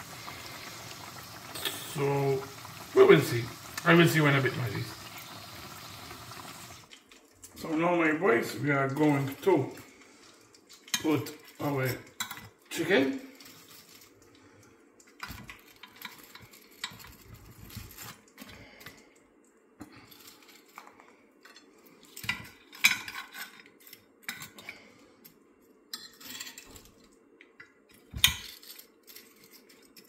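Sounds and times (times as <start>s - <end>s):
faint steady hum: 0.0s - 10.8s.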